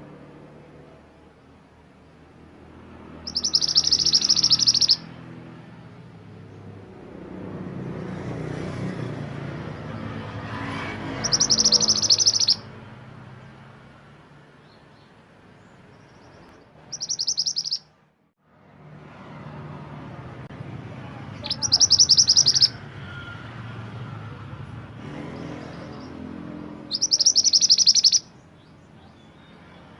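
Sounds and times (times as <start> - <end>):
songbird chattering trills: 3.2 - 5.0, 11.2 - 12.6, 16.1 - 17.8, 21.4 - 22.8, 26.9 - 29.5.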